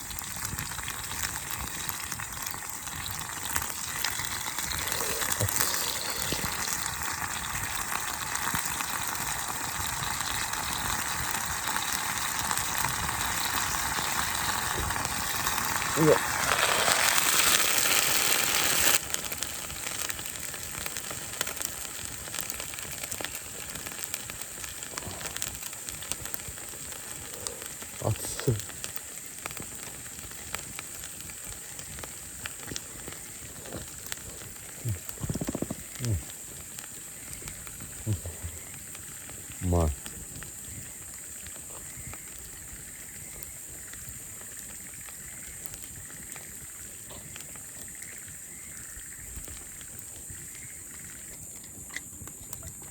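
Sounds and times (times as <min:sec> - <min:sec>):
burning wood crackling: 0:00.0 - 0:52.9
meat sizzling on a grill: 0:00.0 - 0:52.9
person's low vocal sound: 0:04.7 - 0:07.0, 0:15.8 - 0:17.1, 0:34.7 - 0:36.3, 0:38.0 - 0:38.7.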